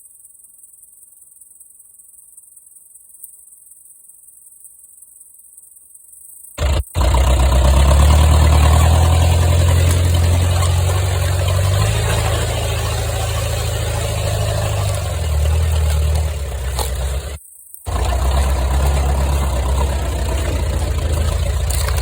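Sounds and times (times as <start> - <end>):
engine running at low revs: 6.6 - 22.0.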